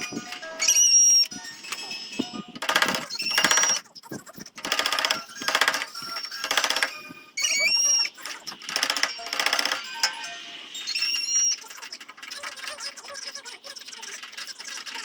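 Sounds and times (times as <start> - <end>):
faint high squeak: 0.6 - 1.3, 5.9 - 8.4, 9.0 - 11.8.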